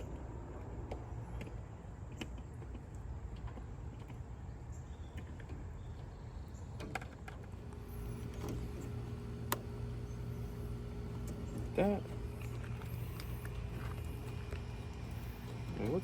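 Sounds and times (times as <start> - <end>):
steady low rumble: 7.5 - 16.0.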